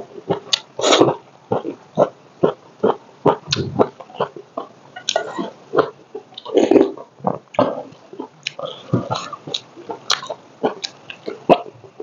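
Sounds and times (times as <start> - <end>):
wet chewing and lip smacks: 9.2 - 11.4.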